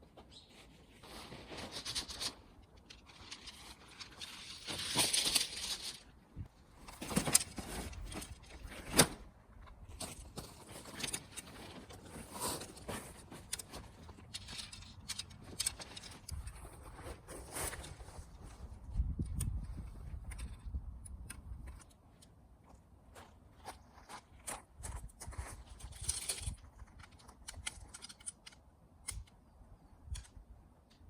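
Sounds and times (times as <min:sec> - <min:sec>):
rustling: 0:00.0 - 0:18.9.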